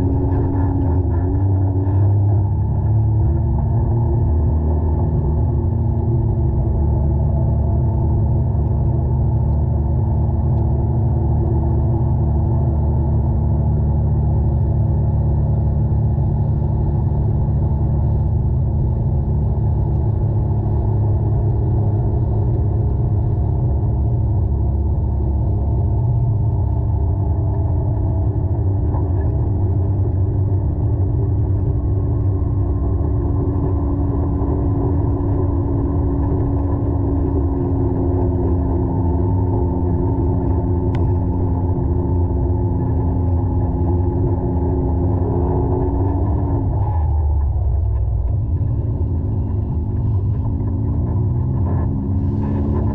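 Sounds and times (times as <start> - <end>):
muffled engine rumbling: 0.0 - 52.9.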